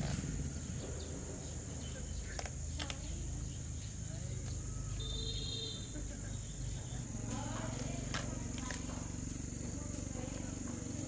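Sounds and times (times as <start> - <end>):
insects chirring: 0.0 - 11.0
low outdoor rumble: 0.0 - 11.0
sharp clicks: 2.2 - 3.2.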